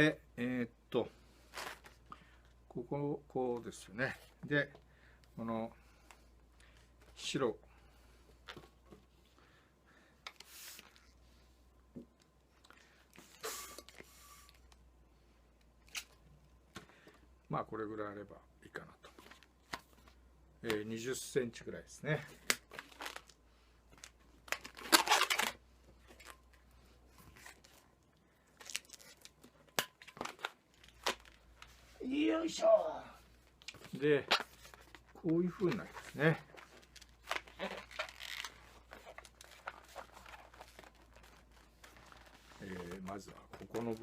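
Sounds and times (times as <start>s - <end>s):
air hissing into balloon: 13.3s - 14.5s
balloon handling clicks and rubs: 22.3s - 27.9s, 33.4s - 44.0s
sharp squeaks and clicks: 36.8s - 41.1s.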